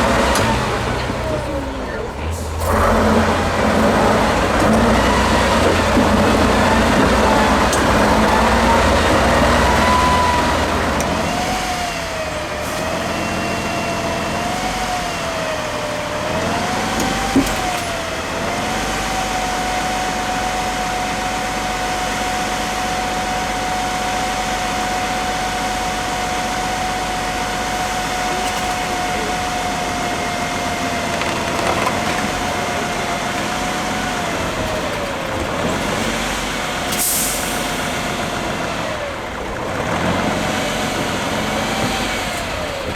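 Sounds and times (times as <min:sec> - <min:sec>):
diesel truck engine whining: 0:00.0 - 0:42.9.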